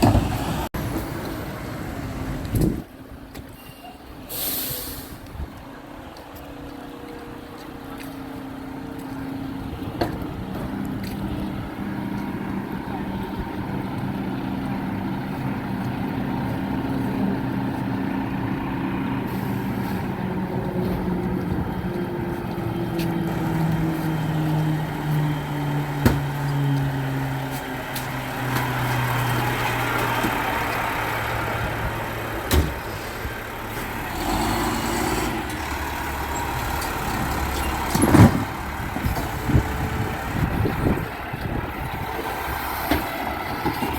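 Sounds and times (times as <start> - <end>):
hiss: 4.3 - 5.2
garbage truck engine running: 7.3 - 43.9.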